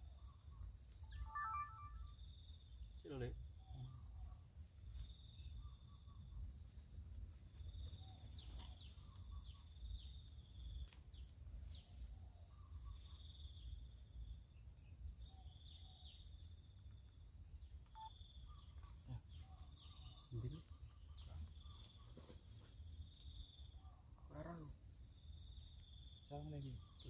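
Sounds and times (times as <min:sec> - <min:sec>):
high bird chirps: 0:00.9 - 0:02.2.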